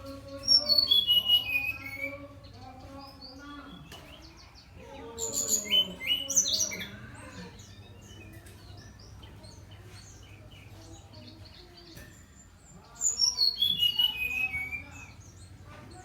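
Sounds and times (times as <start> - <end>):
bird chirps: 0.0 - 16.0
bird whistled song: 0.6 - 2.2, 13.1 - 15.4.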